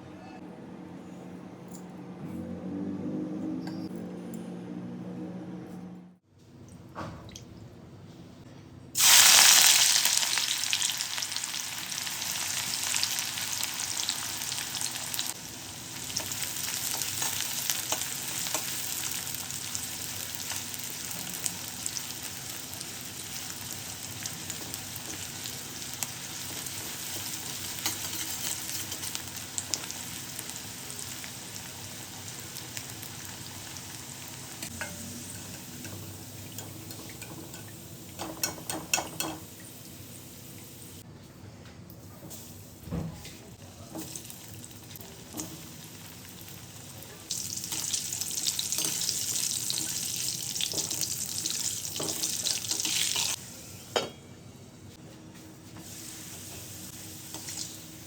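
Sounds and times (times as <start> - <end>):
food frying in hot oil: 9.0 - 40.9, 43.8 - 53.4, 55.8 - 58.0.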